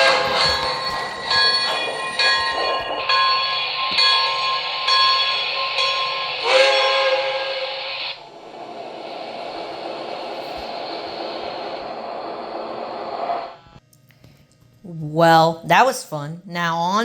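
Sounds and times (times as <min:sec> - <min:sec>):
multi-note train horn blast: 0:00.0 - 0:02.4, 0:06.4 - 0:08.0
steady steam hiss: 0:00.0 - 0:13.7.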